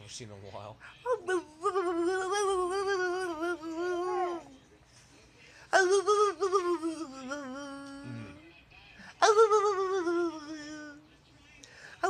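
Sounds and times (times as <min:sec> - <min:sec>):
puppy howling: 0:01.0 - 0:04.6.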